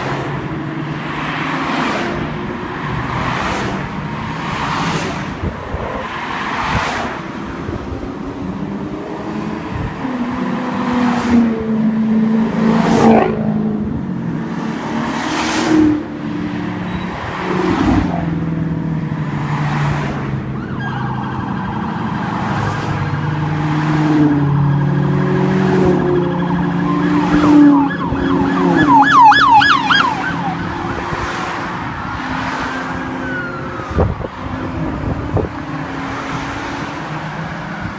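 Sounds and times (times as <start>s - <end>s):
car engines revving and passing: 0.0s - 37.9s
emergency vehicle siren: 20.4s - 37.9s.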